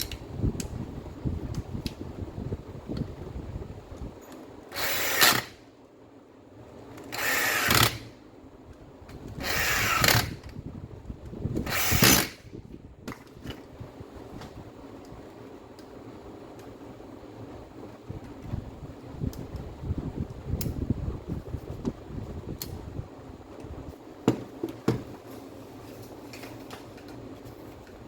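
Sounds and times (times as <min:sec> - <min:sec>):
power tool bursts: 0:04.7 - 0:05.6, 0:07.1 - 0:08.1, 0:09.4 - 0:10.4, 0:11.6 - 0:12.5.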